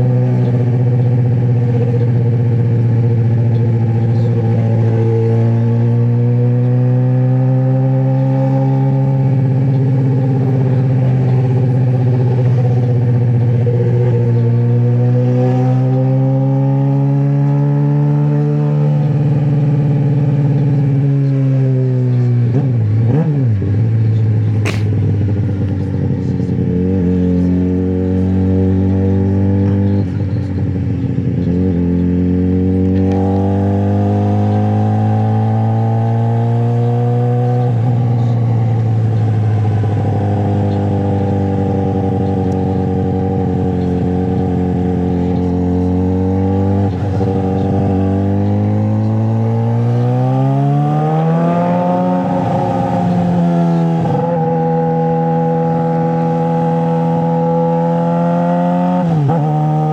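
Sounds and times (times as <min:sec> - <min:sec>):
motorcycle engine running: 0:37.4 - 0:59.9.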